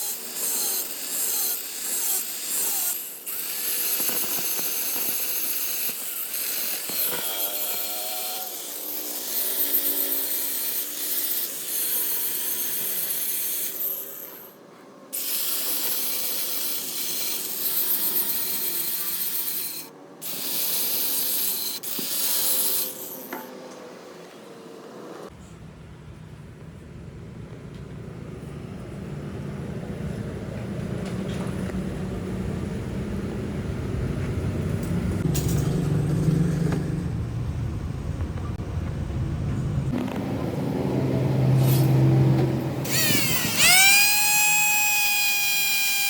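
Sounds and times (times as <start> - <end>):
tool grinding metal: 0.0 - 14.5, 15.2 - 23.5, 42.8 - 46.0.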